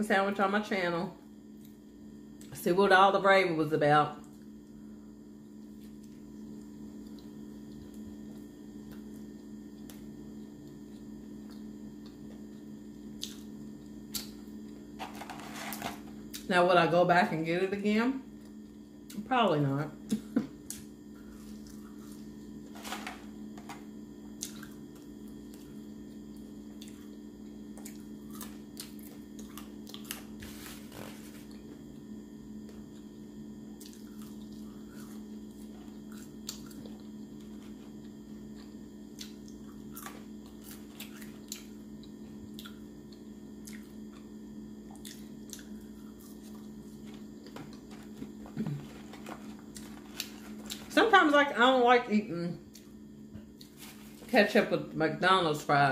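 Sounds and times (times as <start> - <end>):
steady low hum: 0.0 - 55.9
person chewing fries: 5.3 - 16.4, 20.6 - 22.9, 24.2 - 50.9.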